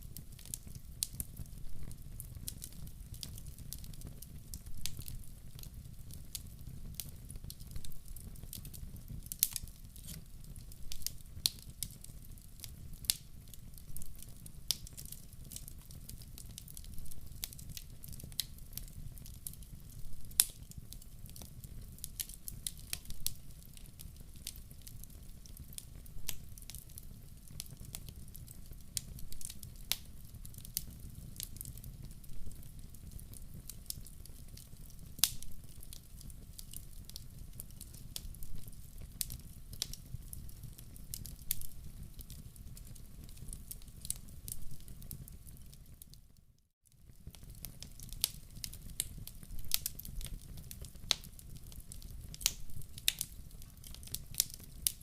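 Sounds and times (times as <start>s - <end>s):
low rumble of flames: 0.0s - 46.0s, 47.1s - 55.0s
wood fire crackling and popping: 0.0s - 46.4s, 47.0s - 55.0s.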